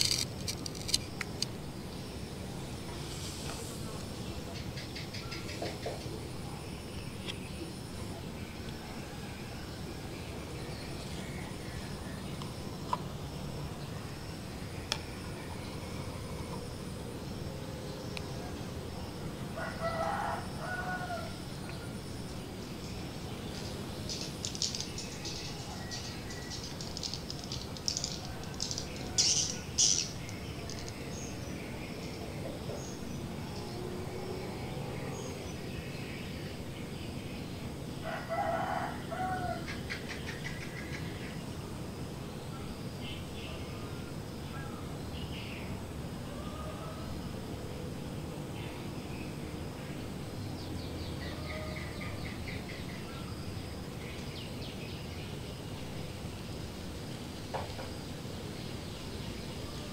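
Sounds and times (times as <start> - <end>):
low background noise: 0.0 - 59.9
outdoor background noise: 0.0 - 59.9
small birds chirping: 20.8 - 37.4.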